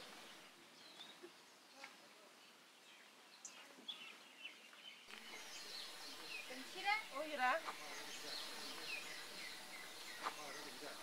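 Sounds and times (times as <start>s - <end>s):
faint outdoor ambience: 0.0s - 11.0s
high bird chirps: 3.4s - 11.0s.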